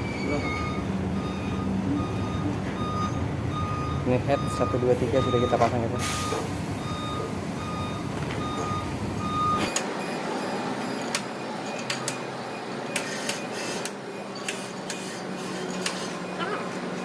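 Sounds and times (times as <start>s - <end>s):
low engine rumble: 0.0s - 12.9s
reversing alarm beeps: 0.0s - 14.6s.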